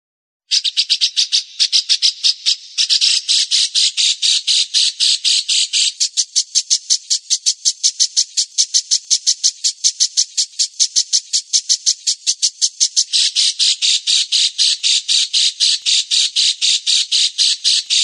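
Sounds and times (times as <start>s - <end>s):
bird rasping call notes: 8.1s - 18.0s.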